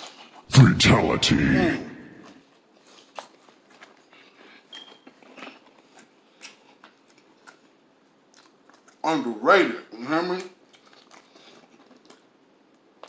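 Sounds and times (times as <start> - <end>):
crunchy chewing: 2.8 - 9.0, 10.7 - 12.3.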